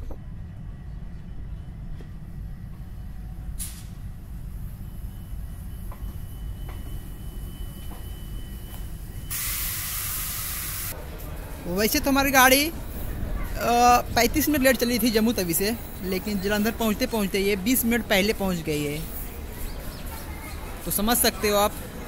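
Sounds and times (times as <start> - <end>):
train wheels rumbling on rail: 0.0 - 22.0
loud steady hiss: 9.3 - 11.0.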